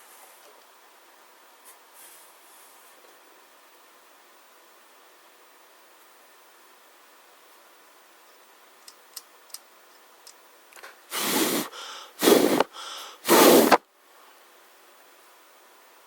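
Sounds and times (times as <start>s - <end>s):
faint clicks: 8.8s - 11.0s
breathy puffs of air: 11.1s - 13.8s.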